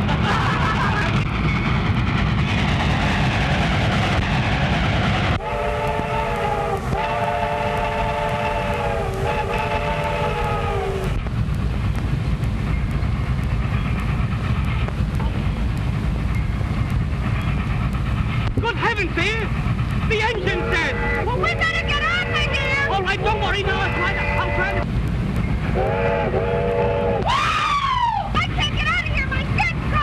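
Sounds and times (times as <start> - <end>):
running train rumble: 0.0 - 30.0
train whistle blasts: 5.4 - 11.1, 20.4 - 24.8, 25.7 - 27.8.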